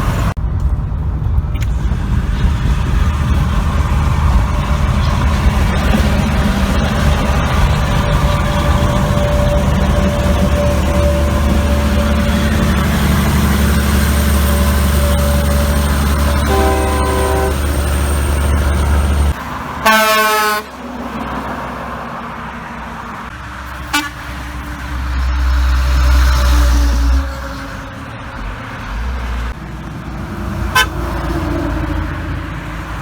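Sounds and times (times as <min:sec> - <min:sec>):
heavy trucks rumbling past: 0:00.0 - 0:33.0
truck horn blast: 0:04.7 - 0:20.8, 0:23.8 - 0:24.3, 0:30.7 - 0:31.1
brief tone: 0:08.1 - 0:19.4.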